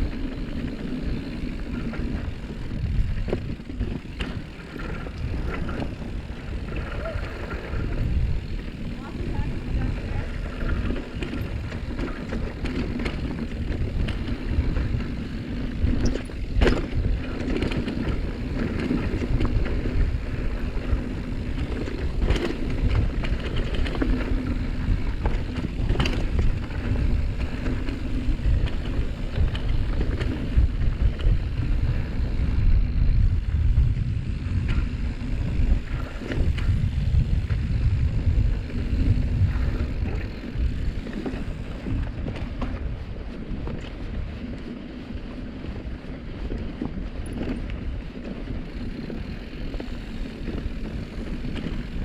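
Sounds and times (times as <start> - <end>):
bike clanking: 0.0 - 42.8, 48.4 - 52.0
bike tyre noise on dirt: 0.0 - 52.0
wind rumble on microphone: 0.0 - 52.0.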